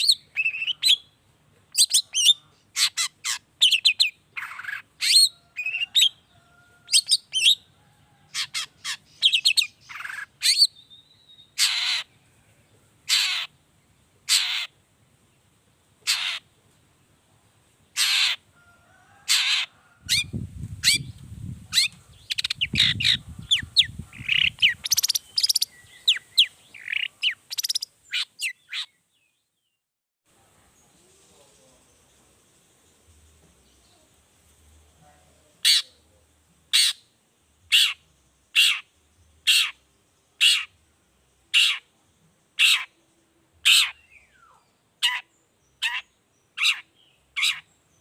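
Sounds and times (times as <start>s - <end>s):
shrike calling: 42.6s - 43.0s.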